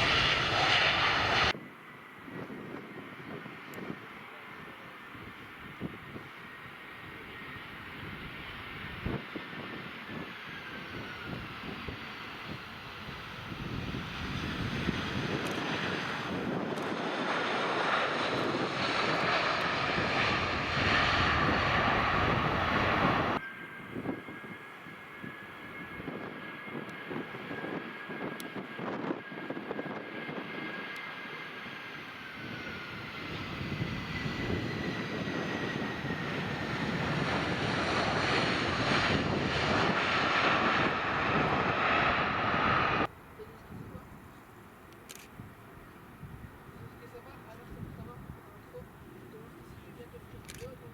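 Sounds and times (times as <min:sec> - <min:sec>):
airliner engine roar: 0:00.0 - 0:50.9
high engine whine: 0:10.6 - 0:43.7.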